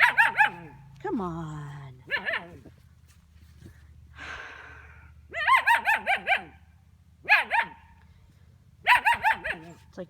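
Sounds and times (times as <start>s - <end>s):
puppy barking: 0.0s - 0.8s, 2.1s - 2.7s, 5.3s - 6.6s, 7.2s - 8.0s, 8.8s - 9.8s.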